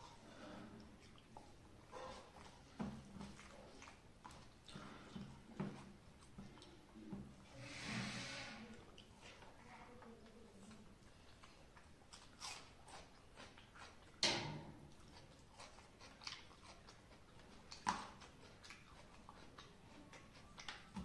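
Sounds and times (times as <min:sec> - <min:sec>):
person chewing rice: 0:00.0 - 0:07.5, 0:08.7 - 0:09.6, 0:10.2 - 0:21.0.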